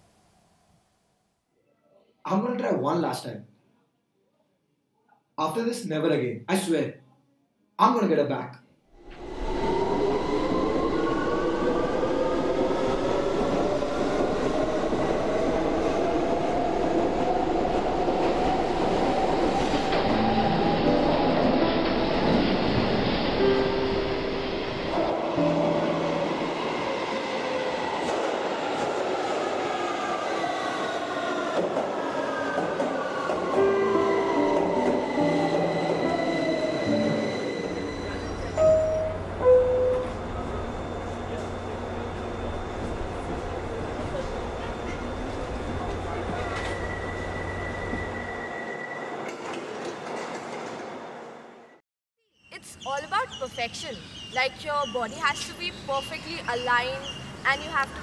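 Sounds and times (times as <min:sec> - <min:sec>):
rising whine: 0:09.0 - 0:13.8
train carriage rumble: 0:31.4 - 0:48.2
loud chime tone: 0:35.3 - 0:41.7.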